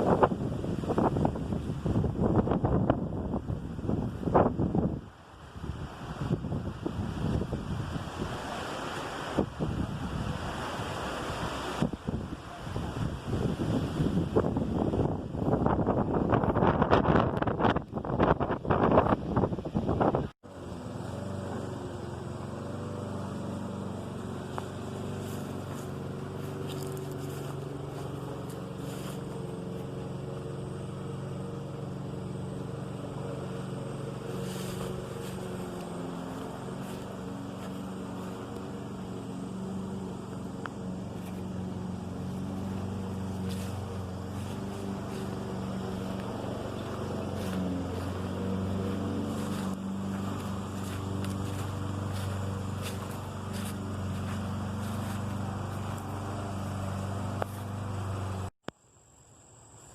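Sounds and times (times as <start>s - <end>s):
engine humming: 0.0s - 58.6s.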